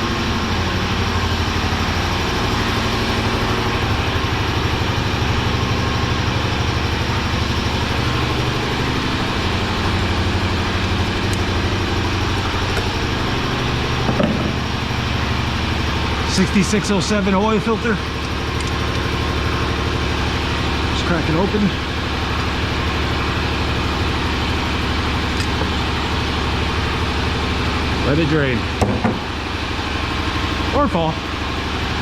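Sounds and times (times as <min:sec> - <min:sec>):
air compressor running: 0:00.0 - 0:32.0.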